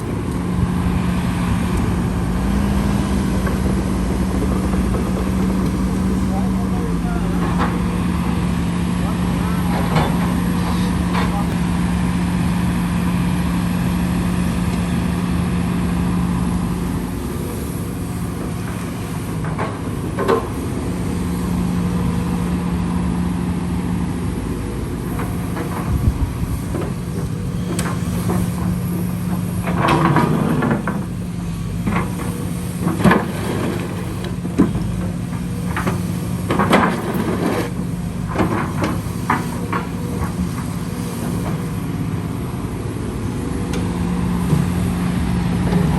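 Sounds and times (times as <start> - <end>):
heavy machine engine running: 0.0 - 45.9
sharp knocks and clatter: 31.8 - 40.7.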